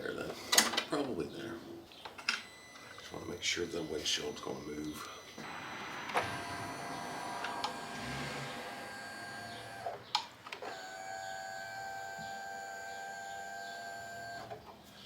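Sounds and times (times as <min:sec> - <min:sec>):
electric windshield motor whining: 0:03.6 - 0:14.6
motor stopping click: 0:06.0 - 0:14.6.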